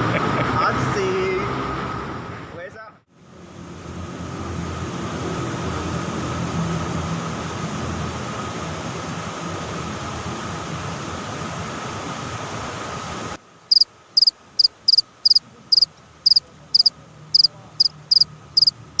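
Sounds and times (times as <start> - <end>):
small animal chirping: 13.7 - 19.0.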